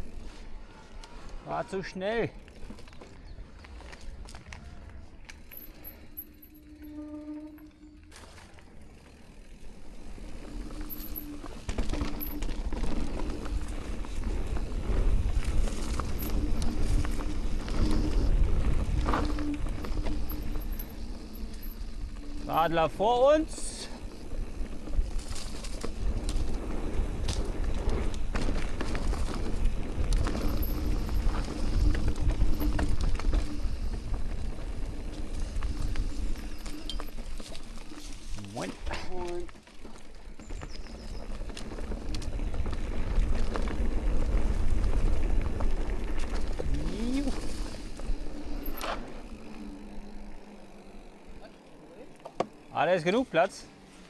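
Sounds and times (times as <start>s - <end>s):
bike rattling clicks: 2.4s - 6.8s, 8.1s - 22.5s, 23.6s - 51.4s
tyres rolling over dirt and stones: 7.8s - 53.6s
wind rumble on microphone: 11.4s - 22.5s, 24.2s - 37.4s
bike knocks and rattles: 52.2s - 52.7s.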